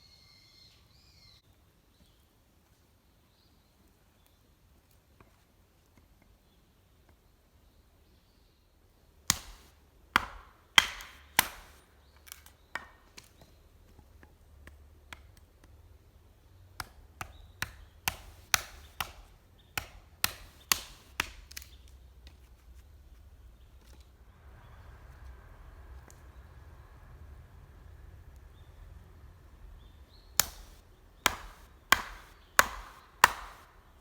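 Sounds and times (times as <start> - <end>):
wood chopping: 9.3 - 15.7, 16.8 - 21.8, 30.4 - 34.0.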